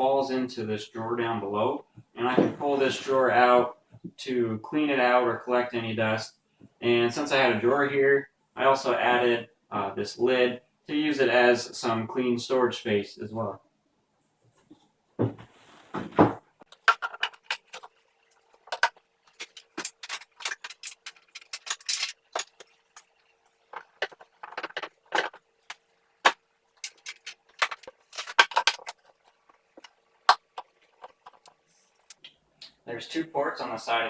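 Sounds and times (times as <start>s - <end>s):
parts clicking and knocking: 16.1s - 32.8s.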